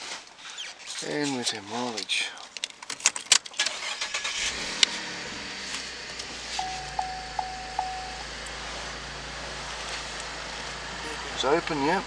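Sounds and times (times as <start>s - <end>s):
car engine idling: 3.6s - 12.0s
dashboard warning chime: 6.6s - 8.6s.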